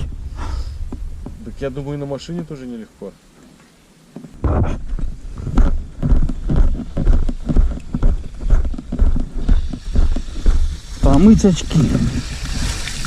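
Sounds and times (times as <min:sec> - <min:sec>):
footsteps on rough road: 0:00.8 - 0:01.6, 0:04.1 - 0:13.0.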